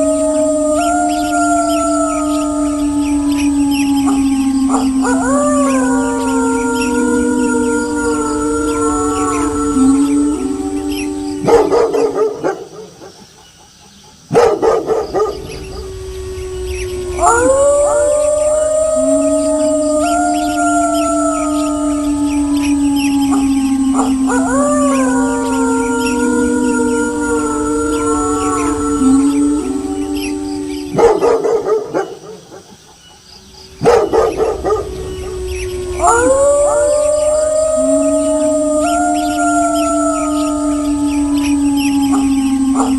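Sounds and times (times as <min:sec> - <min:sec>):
wolves howling: 0:00.0 - 0:13.4, 0:14.3 - 0:32.8, 0:33.4 - 0:42.9
dog barking: 0:11.5 - 0:13.2, 0:14.3 - 0:15.4, 0:31.0 - 0:32.6, 0:33.8 - 0:34.8.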